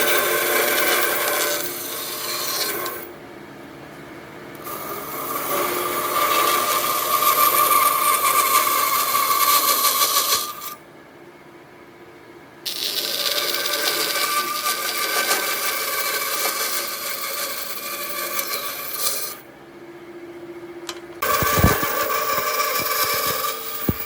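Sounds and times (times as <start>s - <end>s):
power tool whining on wood: 0.0s - 3.1s, 4.6s - 10.8s, 12.7s - 19.4s, 21.2s - 24.0s.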